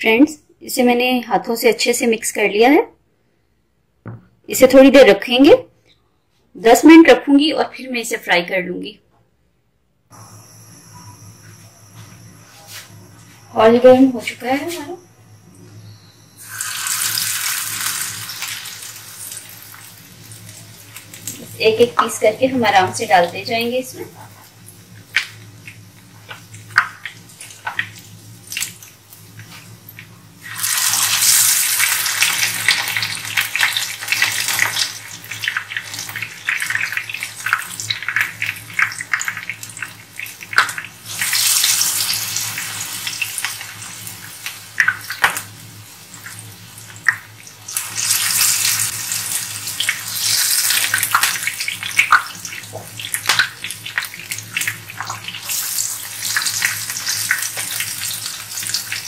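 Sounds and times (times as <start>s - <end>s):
meat sizzling in hot oil: 15.8s - 59.0s.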